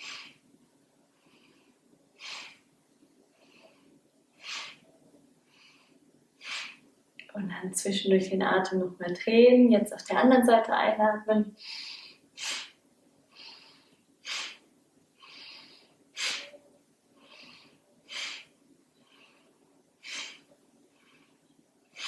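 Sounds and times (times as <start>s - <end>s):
woman breathing: 0.0s - 0.4s, 1.0s - 6.9s, 11.6s - 22.0s.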